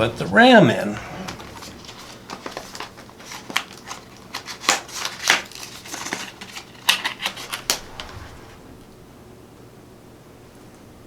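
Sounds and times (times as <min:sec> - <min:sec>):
plastic packaging clicking: 0:01.3 - 0:08.1.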